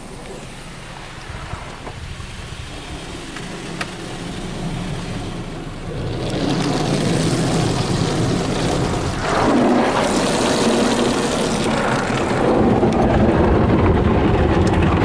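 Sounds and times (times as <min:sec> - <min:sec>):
car wash machinery humming: 0:00.0 - 0:15.0.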